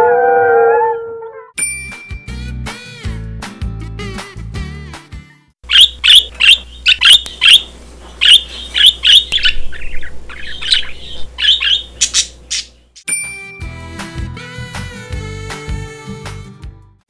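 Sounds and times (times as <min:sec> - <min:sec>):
parrot squawking: 0:05.7 - 0:12.7.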